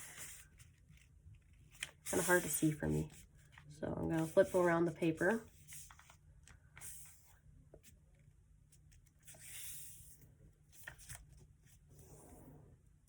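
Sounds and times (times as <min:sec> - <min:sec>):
paper crinkles: 0:00.0 - 0:04.6, 0:05.5 - 0:06.2
paper rustling and folding: 0:00.0 - 0:08.0, 0:08.8 - 0:12.0.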